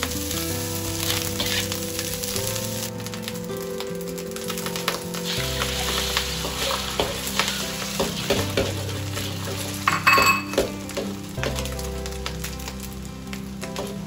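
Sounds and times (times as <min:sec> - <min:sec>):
eggs sizzling in hot oil: 0:00.0 - 0:14.0
soft background music: 0:00.0 - 0:14.0
metal spatula scraping a wok: 0:01.2 - 0:01.8.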